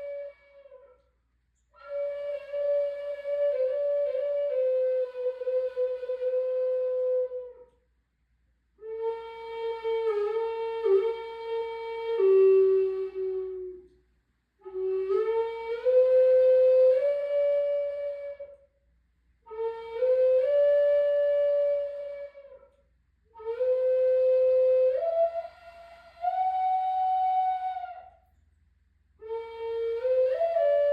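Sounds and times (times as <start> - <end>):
flute playing slow phrases: 0.0 - 1.2, 1.8 - 7.8, 8.8 - 14.0, 14.6 - 18.7, 19.5 - 28.3, 29.2 - 30.9.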